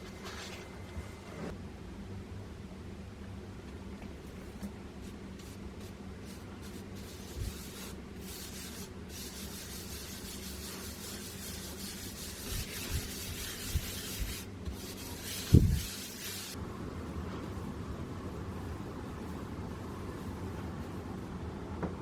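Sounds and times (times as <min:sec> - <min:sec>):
scrubbing against hard surface: 0:07.0 - 0:16.6.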